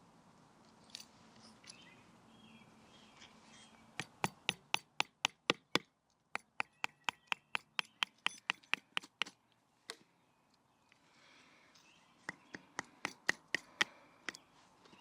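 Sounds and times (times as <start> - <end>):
wooden baton knocking on wood: 4.0 - 5.6, 6.4 - 9.3.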